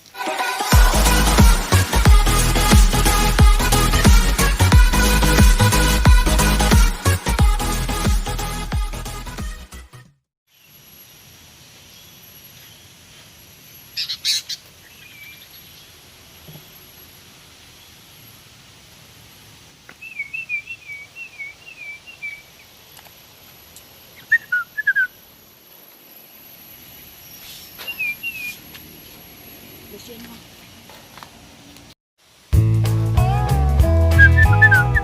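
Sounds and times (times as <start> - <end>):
bulbul chirping and whistling: 20.0 - 22.4, 24.2 - 25.2, 27.4 - 28.6, 34.1 - 35.0.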